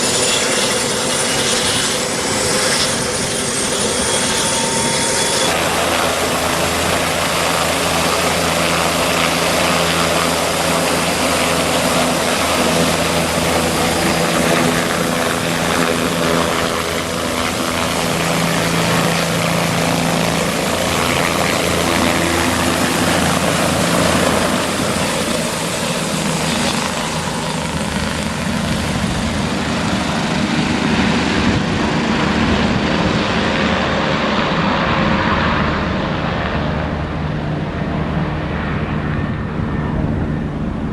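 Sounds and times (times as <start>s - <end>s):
helicopter turbine and rotor: 0.0s - 40.9s.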